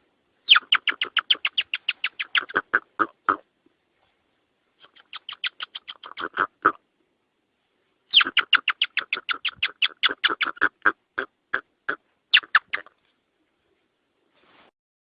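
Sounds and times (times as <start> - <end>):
bird calling in short sharp notes: 8.1 - 11.6.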